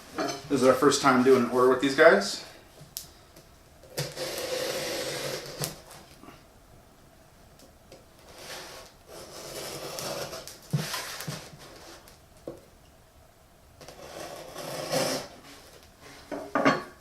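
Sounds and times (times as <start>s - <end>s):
packaging rustling and scraping: 8.2s - 12.1s.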